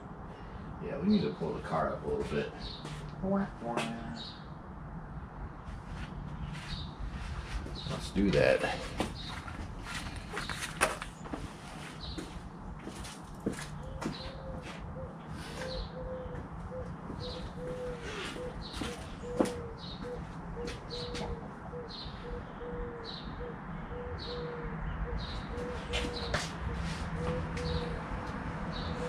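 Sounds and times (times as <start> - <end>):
bird chirping: 6.4 - 11.3, 13.7 - 28.0.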